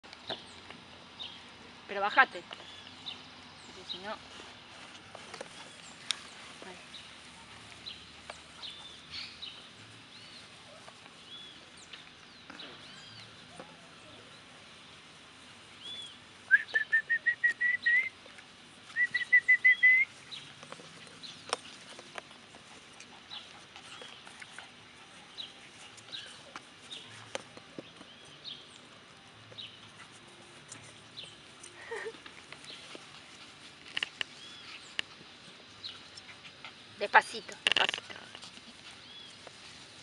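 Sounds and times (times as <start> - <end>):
bird singing whistled notes: 15.8 - 18.1, 18.9 - 20.1.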